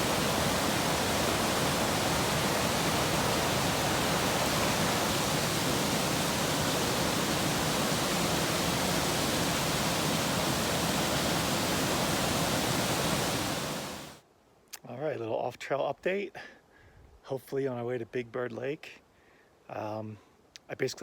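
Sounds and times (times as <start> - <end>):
waterfall rushing: 0.0 - 14.2.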